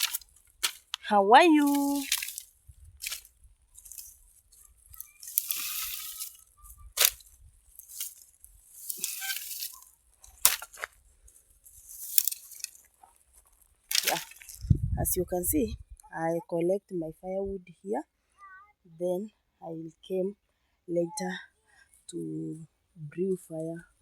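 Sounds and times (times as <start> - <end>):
firewood rustling and crunching: 0.0 - 15.0.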